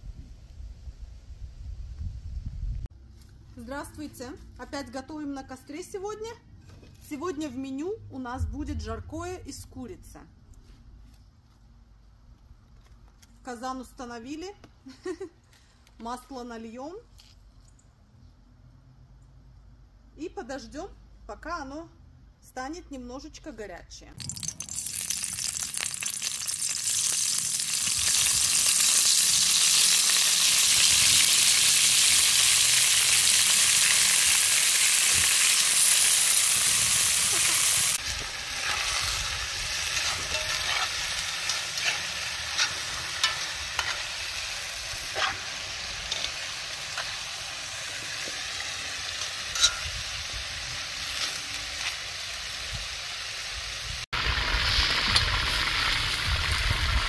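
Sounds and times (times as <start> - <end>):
chicken sizzling in hot oil: 24.2 - 57.0.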